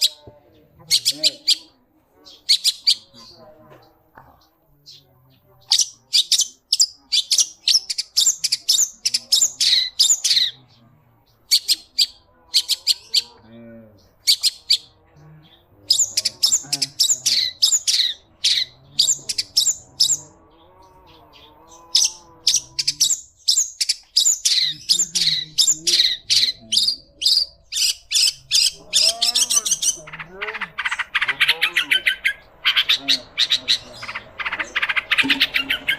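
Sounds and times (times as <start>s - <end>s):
shrike singing chattering notes: 22.0s - 35.9s.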